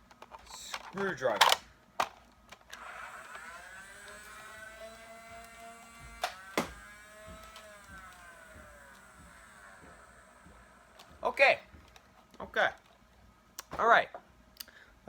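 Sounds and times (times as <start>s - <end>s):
toy blaster firing snap: 2.7s - 11.2s.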